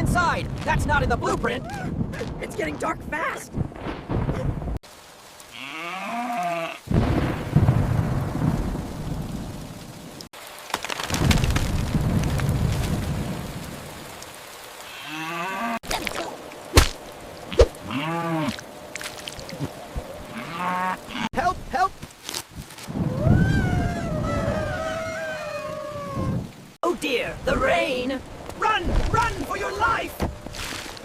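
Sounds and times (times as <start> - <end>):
rain: 0.0 - 31.0
rumbling thunder: 3.5 - 4.8, 6.9 - 10.2, 11.1 - 14.1
sharp thunder cracks: 3.6 - 4.8, 6.9 - 9.8.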